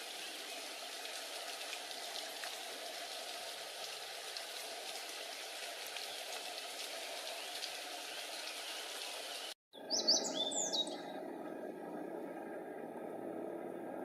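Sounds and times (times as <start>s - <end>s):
faint bird chirps: 8.5s - 11.2s
songbird whistling: 9.8s - 11.1s.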